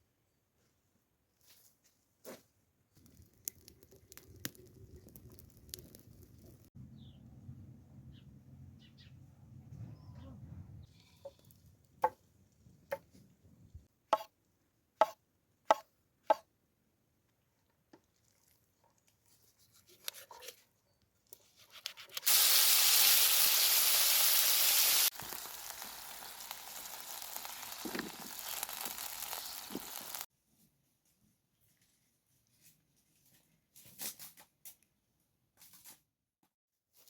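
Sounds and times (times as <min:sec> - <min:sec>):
chicken sizzling over fire: 0:03.0 - 0:06.8, 0:22.0 - 0:30.3.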